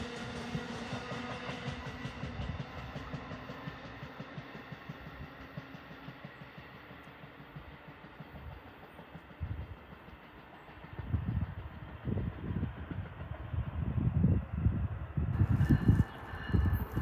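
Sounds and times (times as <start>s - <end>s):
electric train rumble: 0.0s - 17.0s
wind gusts on microphone: 10.9s - 17.0s.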